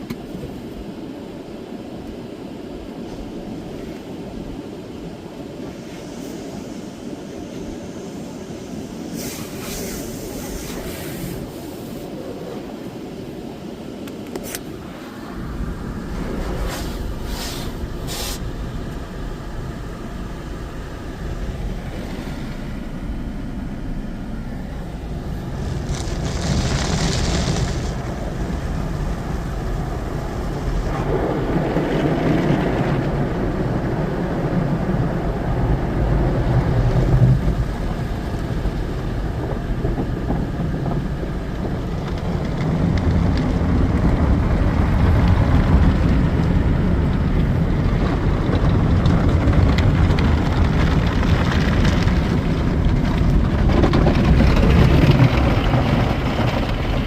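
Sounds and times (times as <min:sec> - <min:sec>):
car wash machinery rumble: 0:00.0 - 0:57.0
washing noise: 0:00.0 - 0:57.0
hissing spray: 0:05.7 - 0:12.2, 0:16.4 - 0:18.6.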